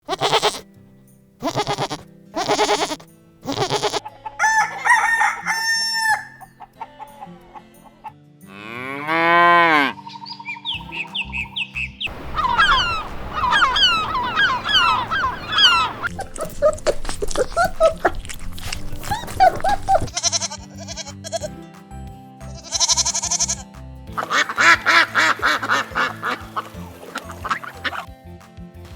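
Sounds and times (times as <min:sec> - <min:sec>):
rooster crowing: 0:04.0 - 0:06.6, 0:12.1 - 0:16.2
chicken clucking: 0:12.2 - 0:20.1, 0:24.2 - 0:28.1.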